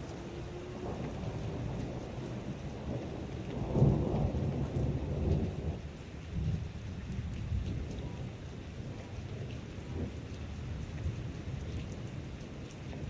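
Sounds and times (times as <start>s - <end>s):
thunder rumbling: 0.0s - 10.2s
heavy rain falling: 0.0s - 13.0s.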